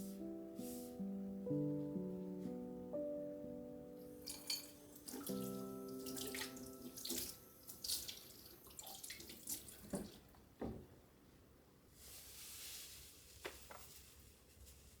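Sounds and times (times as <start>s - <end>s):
water running and splashing: 4.3s - 10.1s.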